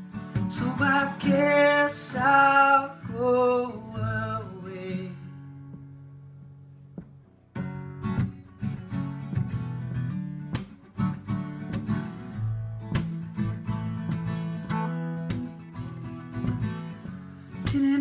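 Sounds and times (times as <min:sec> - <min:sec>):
guitar strumming: 0:00.0 - 0:18.0.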